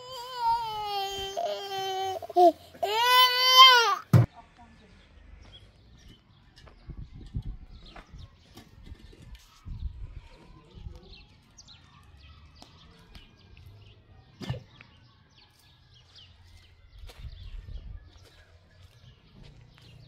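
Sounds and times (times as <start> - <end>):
small birds chirping: 4.6 - 20.0.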